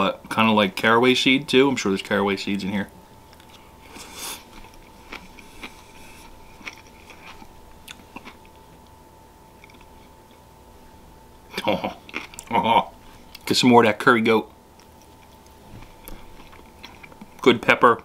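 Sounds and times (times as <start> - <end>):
faint steady hum: 0.0 - 18.0
person chewing food: 3.3 - 10.4, 11.6 - 13.5, 14.8 - 17.5
man talking: 17.4 - 18.0.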